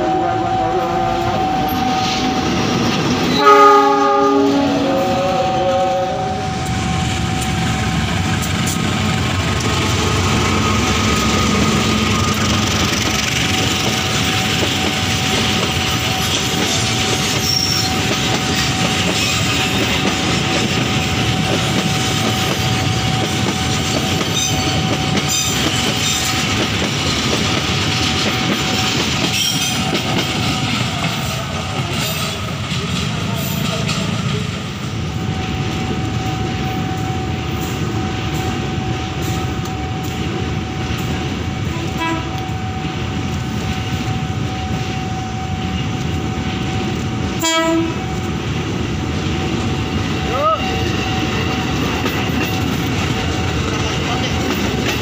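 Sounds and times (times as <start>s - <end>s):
thin high tone: 0.0s - 3.4s
train wheels rumbling on rails: 0.0s - 55.0s.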